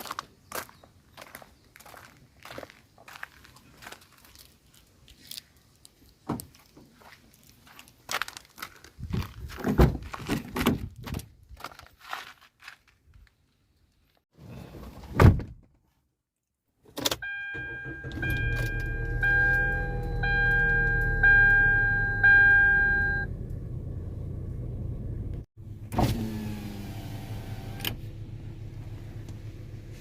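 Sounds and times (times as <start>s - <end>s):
dashboard warning chime: 17.2s - 23.3s
car engine rumbling: 17.3s - 30.0s.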